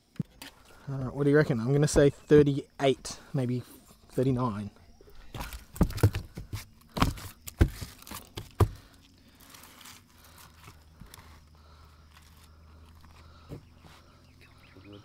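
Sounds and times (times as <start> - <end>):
handling knocks and clatters: 5.2 - 9.1.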